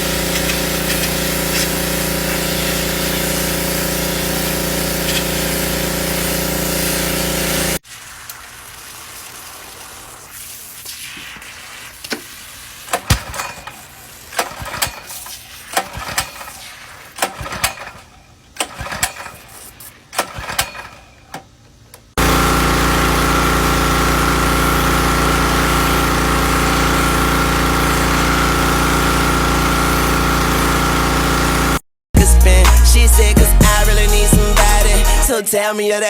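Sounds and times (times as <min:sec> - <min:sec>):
pressure washer engine running: 0:00.0 - 0:07.8, 0:12.9 - 0:16.6, 0:22.2 - 0:31.8, 0:32.4 - 0:35.4
clicks and knocks from equipment: 0:14.4 - 0:16.6, 0:17.2 - 0:22.1.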